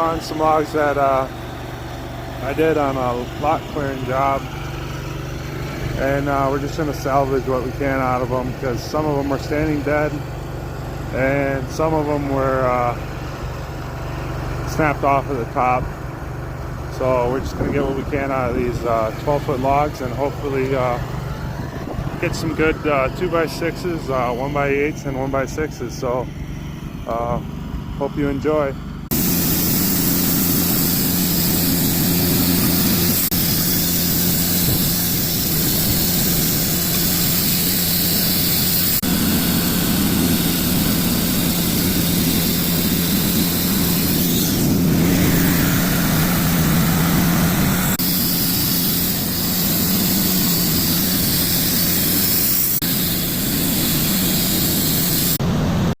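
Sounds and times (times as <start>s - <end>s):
saw cutting logs: 0.0s - 13.3s, 28.6s - 55.5s
sawmill engine drone: 0.0s - 56.0s.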